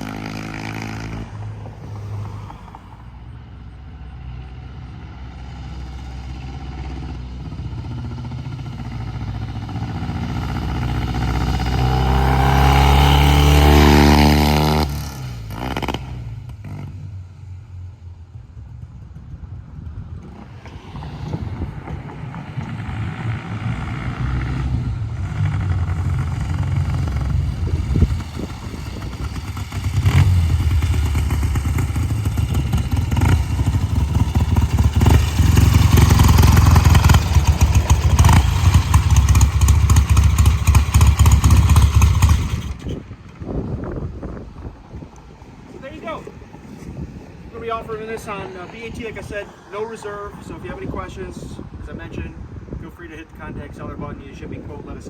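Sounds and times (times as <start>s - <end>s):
motorcycle engine running: 6.3s - 20.6s, 21.4s - 44.8s.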